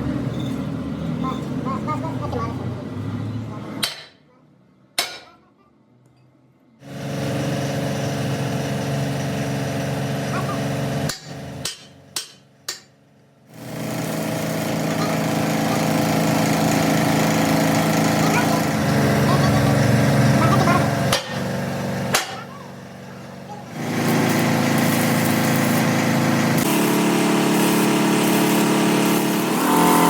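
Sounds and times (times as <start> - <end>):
workshop machine humming: 6.7 - 30.0.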